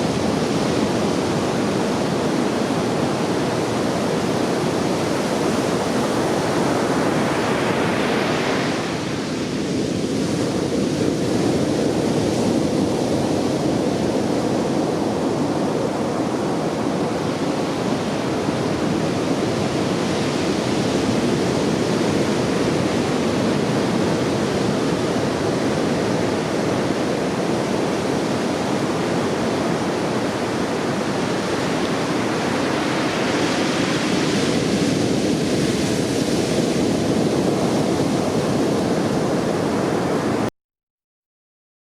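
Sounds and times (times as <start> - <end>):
heavy surf breaking on beach: 0.0 - 40.5.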